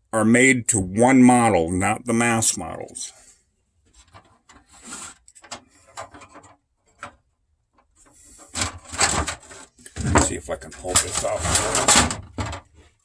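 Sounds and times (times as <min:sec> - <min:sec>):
plastic parts scraping: 0:03.9 - 0:07.2, 0:07.8 - 0:13.0.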